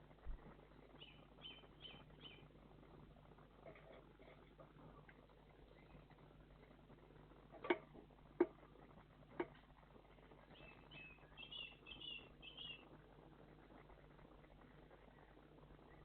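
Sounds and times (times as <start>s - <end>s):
songbirds calling: 1.0s - 2.5s, 10.5s - 12.9s.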